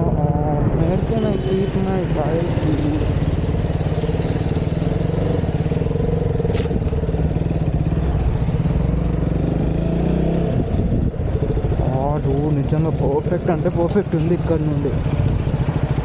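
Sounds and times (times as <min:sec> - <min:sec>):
motorcycle engine at low revs: 0:00.0 - 0:16.0.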